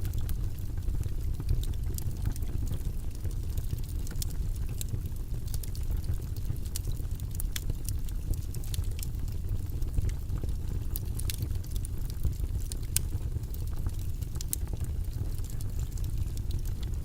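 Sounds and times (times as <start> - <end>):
rumbling white noise: 0.0 - 17.0.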